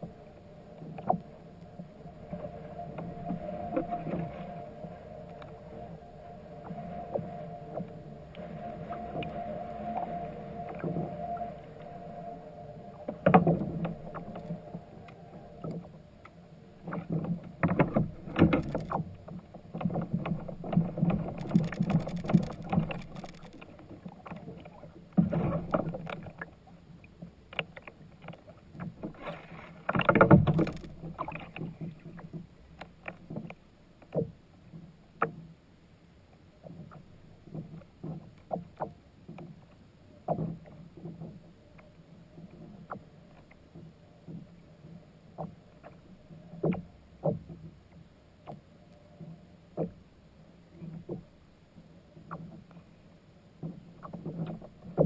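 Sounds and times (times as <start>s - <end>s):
water noise: 0.0s - 35.5s
gear bumping kayak hull: 29.8s - 34.3s.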